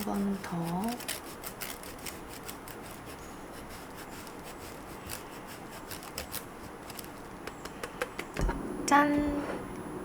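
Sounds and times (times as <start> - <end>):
soft rubbing and scraping: 9.2 - 9.8.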